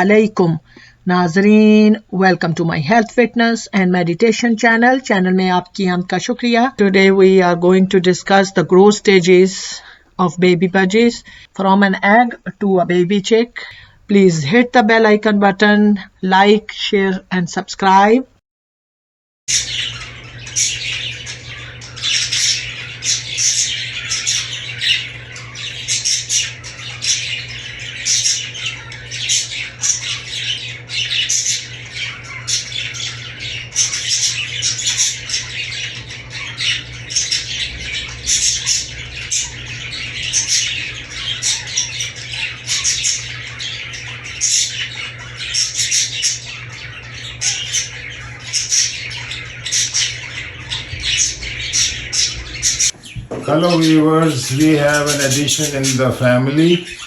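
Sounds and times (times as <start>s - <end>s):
steady low hum: 0.0s - 17.4s, 19.5s - 57.0s
budgies chattering and squawking: 0.0s - 18.2s, 19.5s - 57.0s.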